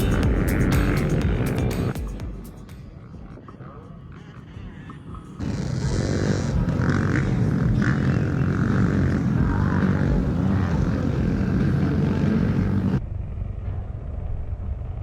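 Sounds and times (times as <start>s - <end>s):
motocross bike engine under throttle: 0.0s - 2.0s, 5.4s - 15.0s.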